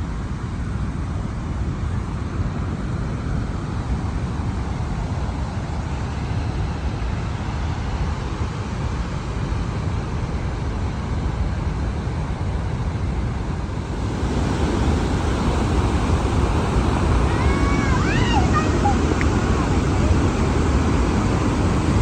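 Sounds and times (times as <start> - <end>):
waterfall roaring: 13.6 - 22.0
wind buffeting microphone: 13.6 - 22.0.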